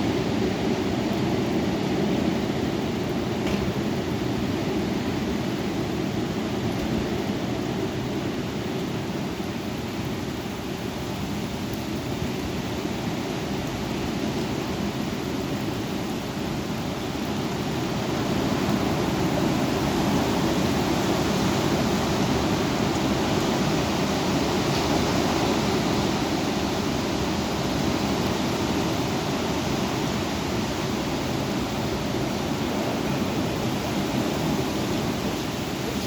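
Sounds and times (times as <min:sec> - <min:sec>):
strong wind blowing: 0:15.9 - 0:36.0.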